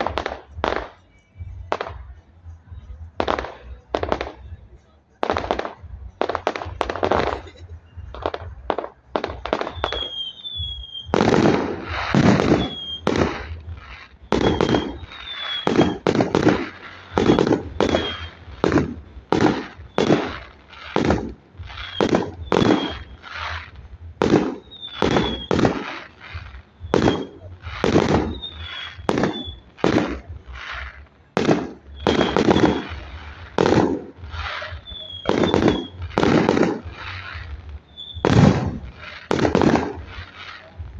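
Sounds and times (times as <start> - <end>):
firework shell bursts: 0.0 - 40.8
high falling whistles: 9.6 - 11.1, 12.0 - 13.6, 14.4 - 16.0, 16.6 - 18.5, 21.6 - 23.6, 24.6 - 25.6, 28.2 - 29.7, 31.9 - 33.4, 34.4 - 36.1, 37.9 - 38.3.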